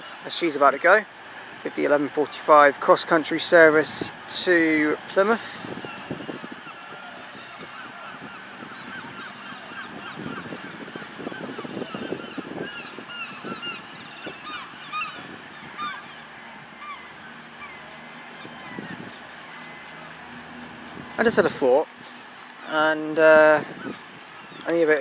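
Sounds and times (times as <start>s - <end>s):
birds calling: 1.8s - 25.0s.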